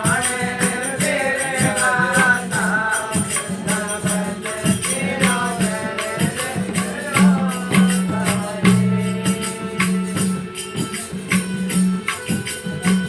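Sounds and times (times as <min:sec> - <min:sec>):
jingling tambourine: 0:00.0 - 0:13.0
rhythmic percussion: 0:00.0 - 0:13.0.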